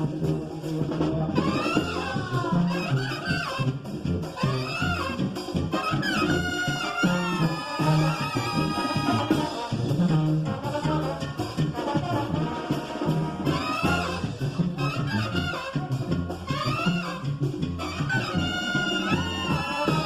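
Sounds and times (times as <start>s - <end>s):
brass band music: 0.0s - 20.0s
pulsing bass line: 0.0s - 20.0s.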